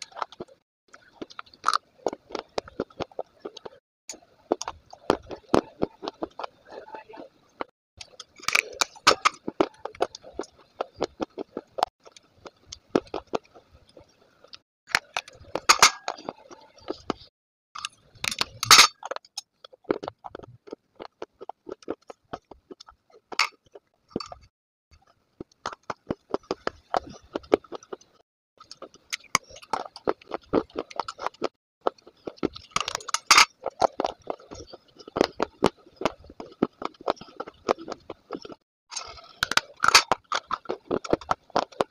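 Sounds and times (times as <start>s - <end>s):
crunching baked clay: 24.4s - 41.9s.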